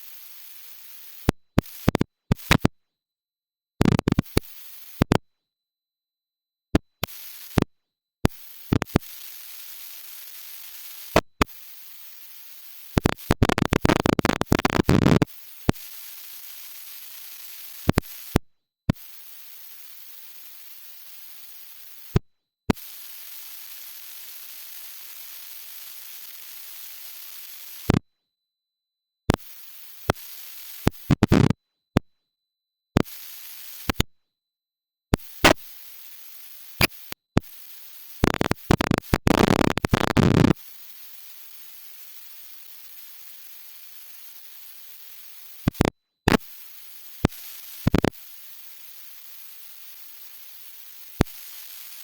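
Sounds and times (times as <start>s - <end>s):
steady hiss: 40.6s - 52.0s.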